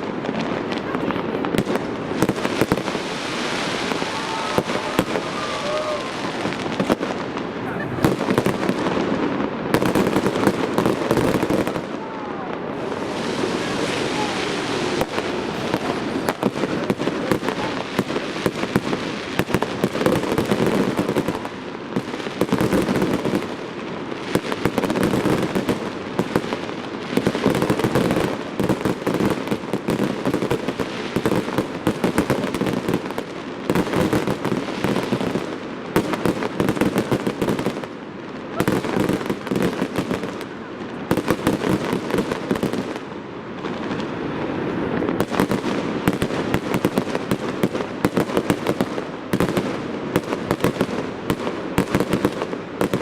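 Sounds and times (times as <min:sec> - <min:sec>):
crowd murmur: 0:00.0 - 0:18.8, 0:38.4 - 0:39.5
fireworks bangs and crackling: 0:00.0 - 0:53.0.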